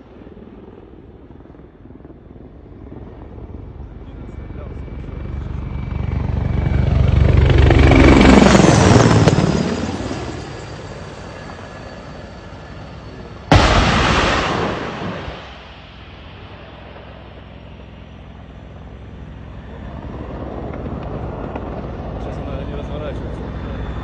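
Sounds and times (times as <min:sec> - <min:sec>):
helicopter rotor beat: 0:00.0 - 0:24.0
sudden loud blast: 0:13.4 - 0:17.7.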